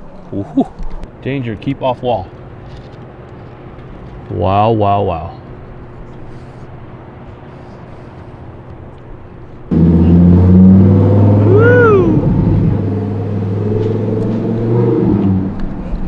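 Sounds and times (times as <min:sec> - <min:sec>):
car engine and road noise: 0:00.0 - 0:16.0
short rising and falling tone: 0:09.7 - 0:15.6.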